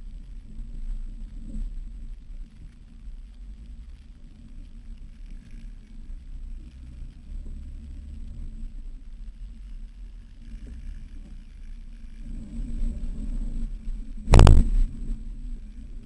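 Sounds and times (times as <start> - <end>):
loud thump: 14.3 - 14.9.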